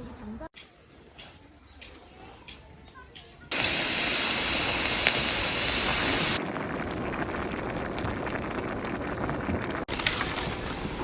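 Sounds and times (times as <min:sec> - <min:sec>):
faintly crackling hiss: 0:03.5 - 0:06.4
loud rushing hiss: 0:03.5 - 0:06.4.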